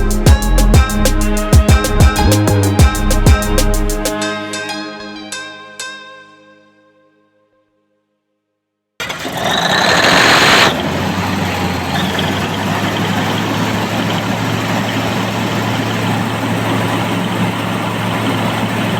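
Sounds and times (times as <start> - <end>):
engine idling: 9.0 - 18.9
loud noisy burst: 9.0 - 18.9.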